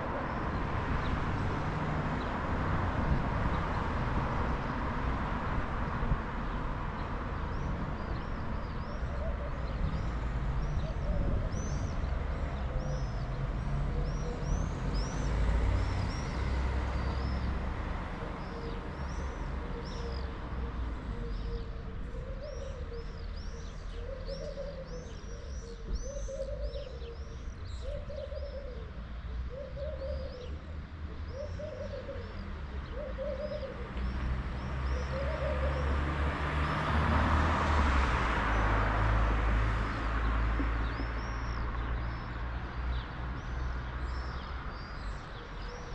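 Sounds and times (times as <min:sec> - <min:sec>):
dove cooing: 0:08.9 - 0:09.8, 0:21.1 - 0:34.2, 0:34.9 - 0:35.9.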